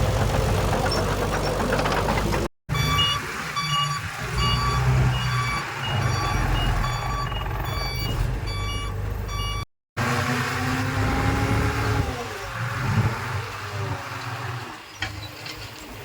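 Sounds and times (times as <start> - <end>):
diesel engine rumble: 0.0 - 16.0
backup alarm beeping: 2.7 - 9.7.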